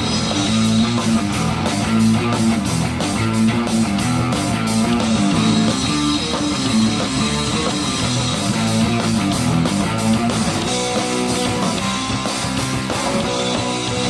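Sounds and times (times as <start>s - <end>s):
punk rock band playing: 0.0s - 14.0s.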